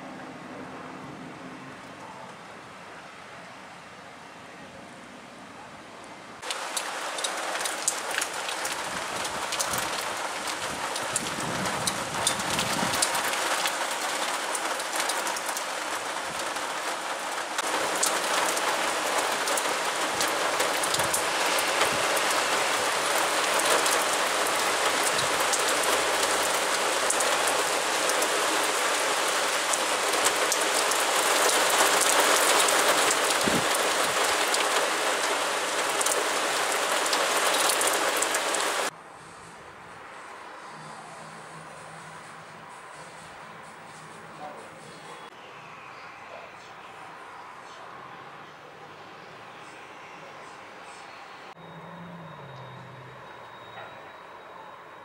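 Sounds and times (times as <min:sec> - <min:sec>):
raindrop ticks: 0:06.4 - 0:38.9
heavy rain hissing: 0:06.4 - 0:45.3.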